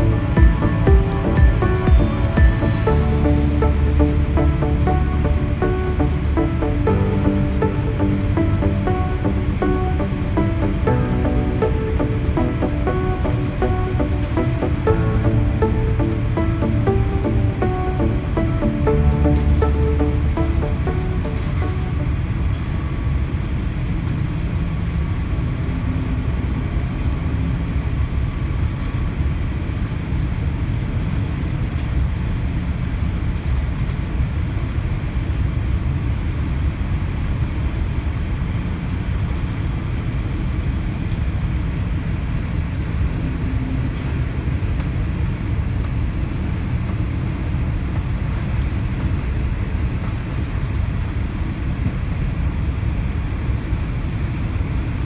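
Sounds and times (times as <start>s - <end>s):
airplane cabin rumble and hiss: 20.9s - 55.0s.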